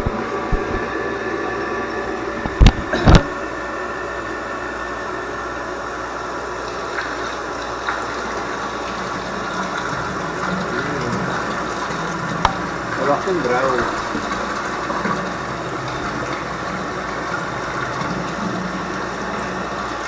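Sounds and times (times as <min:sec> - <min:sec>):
electric water pump humming: 0:00.0 - 0:20.0.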